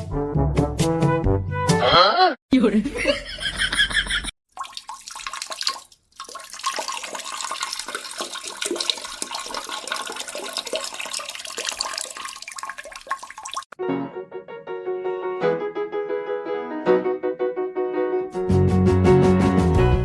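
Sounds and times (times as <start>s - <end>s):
water running and splashing: 4.5s - 13.8s.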